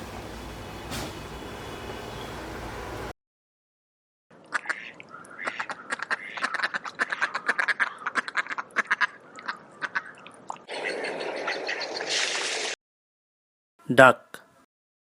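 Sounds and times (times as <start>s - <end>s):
duck quacking: 4.5s - 10.1s.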